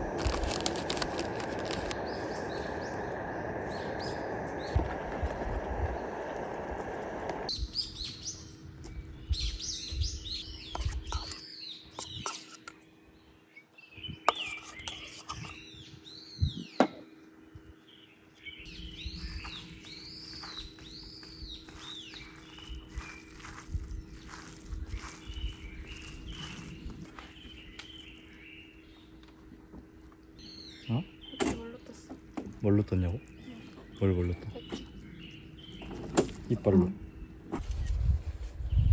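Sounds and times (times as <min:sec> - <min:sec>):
steady rushing noise: 0:00.0 - 0:07.5
small birds chirping: 0:00.0 - 0:16.8, 0:17.5 - 0:29.4, 0:30.0 - 0:38.9.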